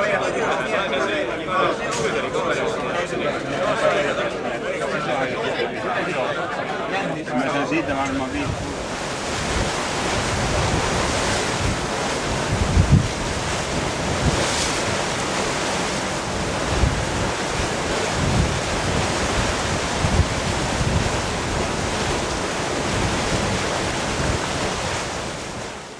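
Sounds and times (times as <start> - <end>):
wind gusts buffeting microphone: 7.7 - 25.9
wind rushing: 7.9 - 25.9.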